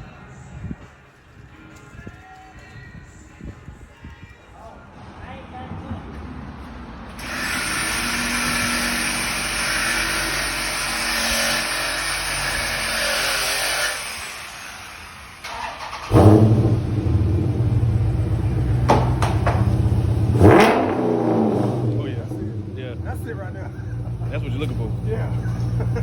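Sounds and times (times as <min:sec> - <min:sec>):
car driving noise: 0:04.9 - 0:11.4, 0:14.9 - 0:26.0
loud vee eight engine starting: 0:07.1 - 0:26.0.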